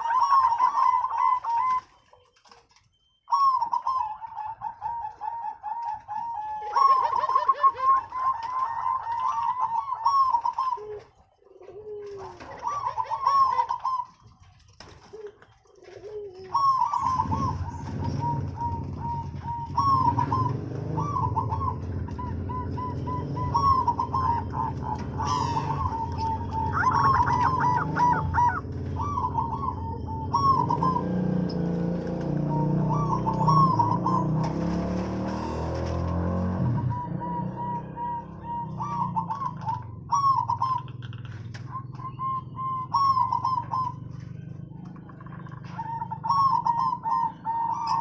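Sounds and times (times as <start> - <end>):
doves cooing: 0.0 - 48.0
small birds chirping: 0.0 - 48.0
steady low hum: 17.0 - 34.1.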